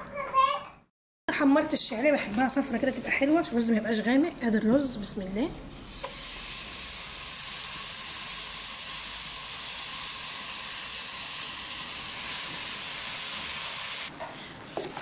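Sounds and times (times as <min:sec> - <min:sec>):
rice sizzling in hot ghee: 0:01.6 - 0:15.0.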